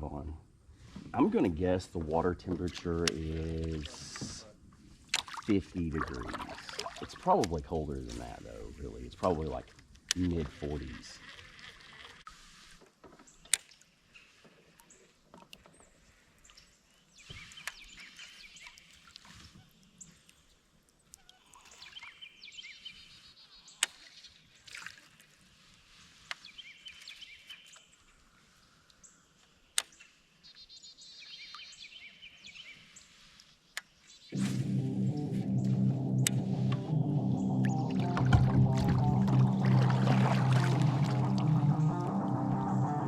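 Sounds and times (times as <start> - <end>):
creek water flowing: 1.0 - 12.5, 34.4 - 43.0.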